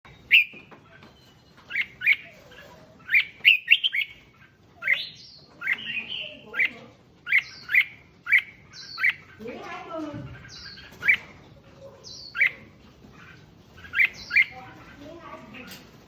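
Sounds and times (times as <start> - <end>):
bird singing whistled notes: 0.1 - 2.3.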